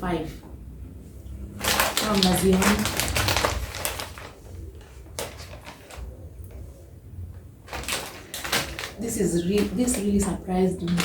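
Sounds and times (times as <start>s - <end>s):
plastic snack packets crinkling: 1.5s - 6.6s, 7.6s - 11.0s.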